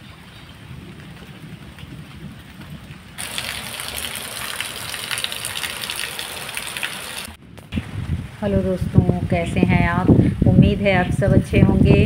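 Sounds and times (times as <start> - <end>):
heavy rain hissing: 3.2 - 8.5
low rumble: 7.3 - 12.0.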